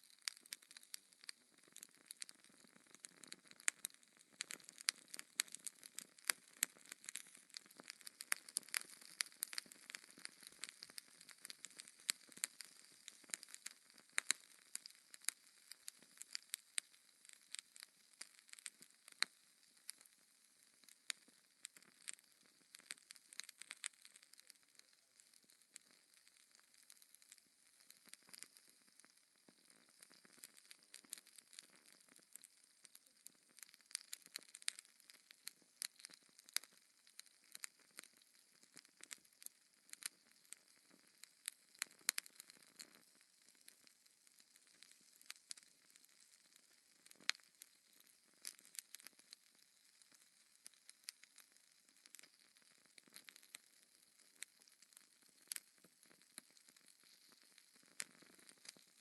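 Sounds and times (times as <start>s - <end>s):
fire crackling in fireplace: 0.0s - 59.0s.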